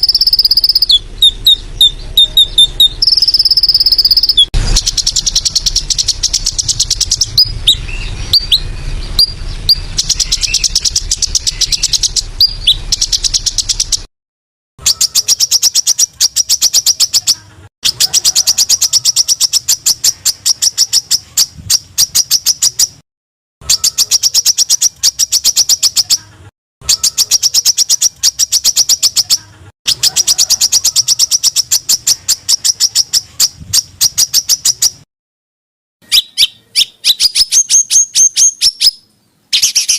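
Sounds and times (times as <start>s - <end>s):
songbird rapid sharp notes: 0.0s - 14.1s
whistled bird notes: 0.0s - 14.1s, 14.8s - 23.0s, 36.0s - 39.9s.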